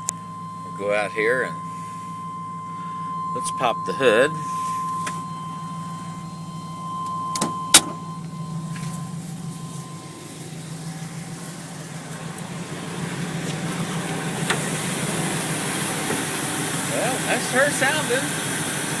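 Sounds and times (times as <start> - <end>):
pickup engine idling: 0.0 - 19.0
chime-like tone: 0.1 - 11.6.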